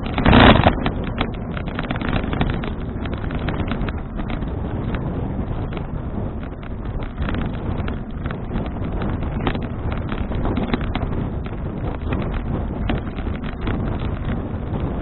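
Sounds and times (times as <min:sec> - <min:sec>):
small clicks and rattles: 0:00.0 - 0:15.0
wind buffeting microphone: 0:00.0 - 0:15.0.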